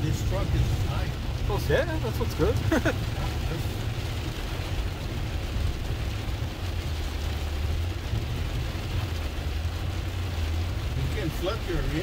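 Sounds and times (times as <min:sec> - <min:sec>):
rushing water and rain: 0:00.0 - 0:12.0.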